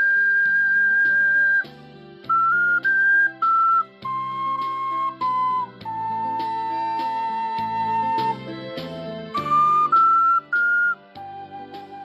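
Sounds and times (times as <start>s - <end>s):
ocarina melody: 0.0s - 8.7s, 9.3s - 12.0s
backing accompaniment: 0.0s - 12.0s.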